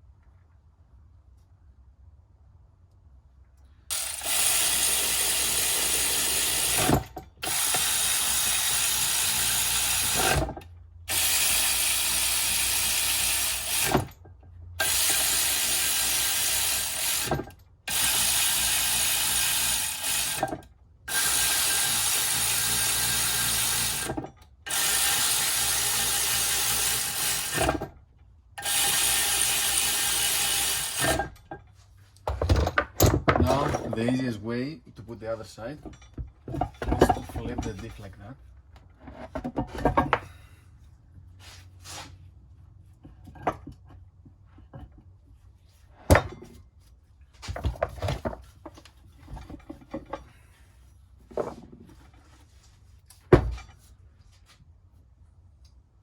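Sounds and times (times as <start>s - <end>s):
workshop tool running: 3.9s - 28.0s, 28.6s - 31.6s.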